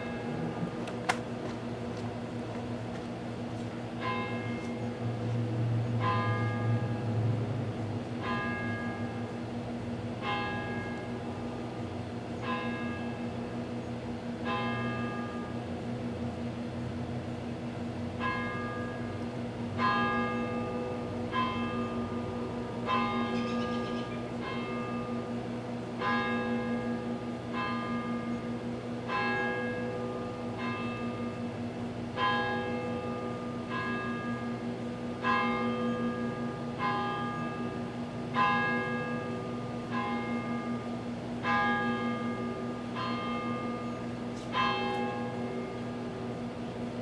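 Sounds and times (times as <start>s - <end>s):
microwave oven humming: 0.0s - 6.0s.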